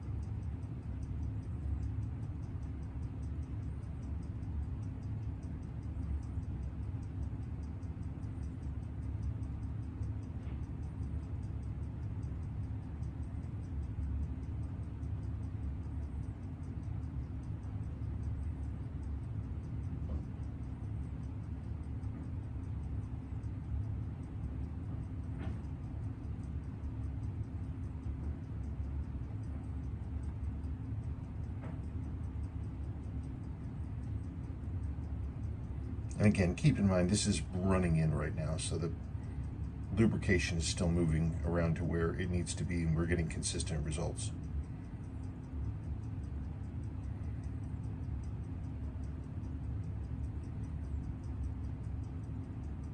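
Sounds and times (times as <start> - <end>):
low hum: 0.0 - 52.9
watch movement ticking rapidly: 0.0 - 52.9.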